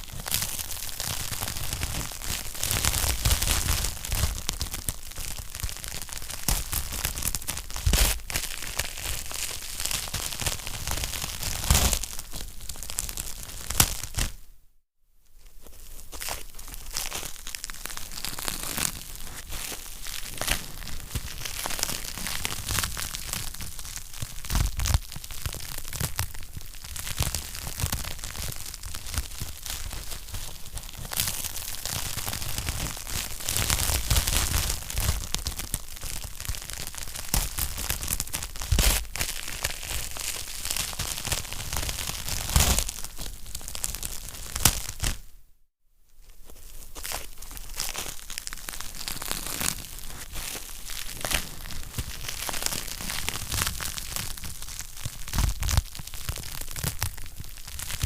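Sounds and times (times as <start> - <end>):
wood fire crackling: 17.0 - 45.1, 47.4 - 58.0.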